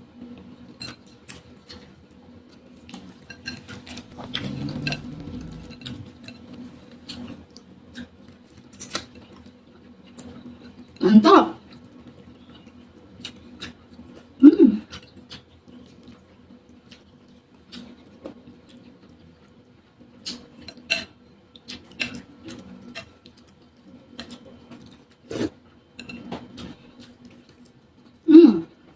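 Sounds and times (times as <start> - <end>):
chewing and mouth noises: 2.6 - 11.0.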